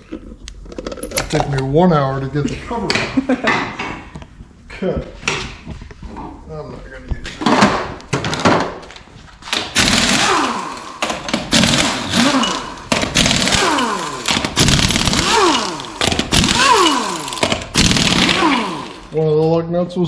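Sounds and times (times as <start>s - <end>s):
pneumatic impact wrench hammering: 9.5s - 19.1s.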